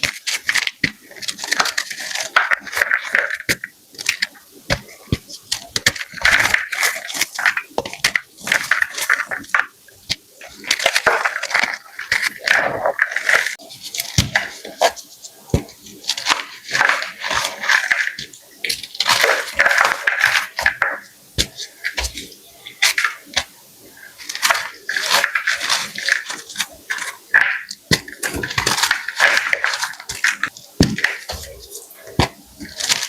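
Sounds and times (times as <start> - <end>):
chalk being crushed: 24.1 - 33.0.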